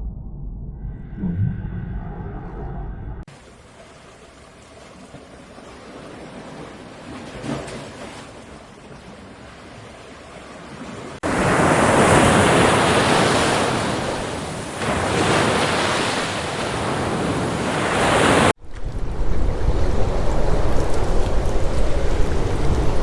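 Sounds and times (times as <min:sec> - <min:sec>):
ocean surf roaring: 0:09.9 - 0:23.0.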